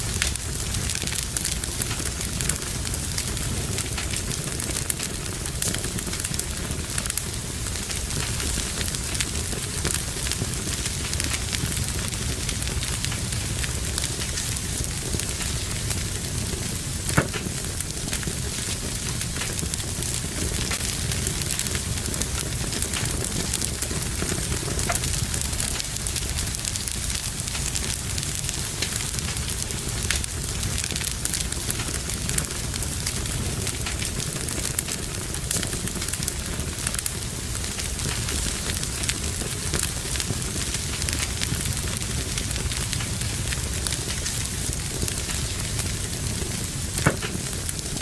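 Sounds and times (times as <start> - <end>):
fireplace fire crackling: 0.0 - 48.0.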